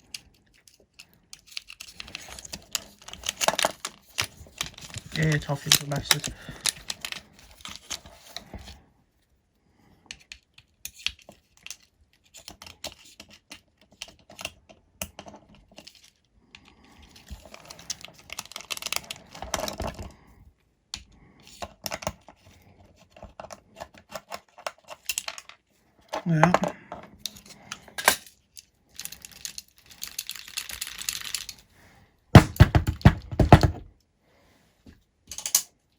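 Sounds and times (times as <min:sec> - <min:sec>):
hand tools clicking and scraping: 0:00.0 - 0:08.8, 0:26.1 - 0:28.4.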